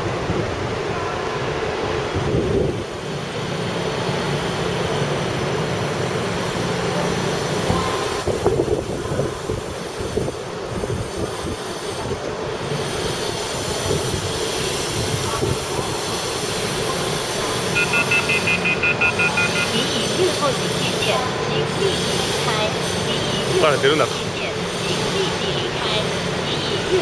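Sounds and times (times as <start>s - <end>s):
train rumbling with low hum: 0.0s - 27.0s.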